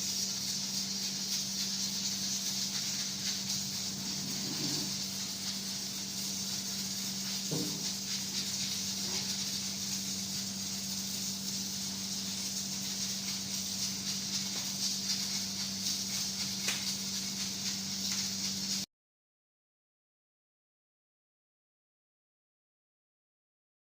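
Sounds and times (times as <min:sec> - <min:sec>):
steady hiss: 0:00.0 - 0:18.9.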